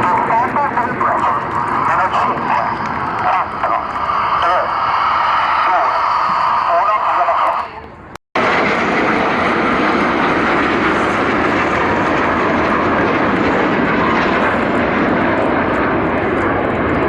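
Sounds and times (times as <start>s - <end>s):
jet planes flying overhead: 0.0s - 17.0s.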